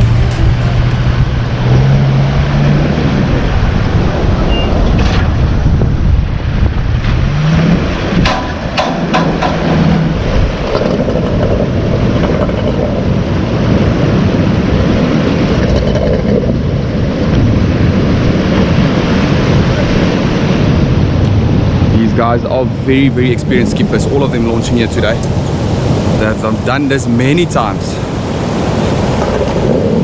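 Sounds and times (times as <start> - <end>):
boat engine running: 0.0 - 30.0
wind buffeting microphone: 0.0 - 30.0
sharp knocks: 8.2 - 11.4.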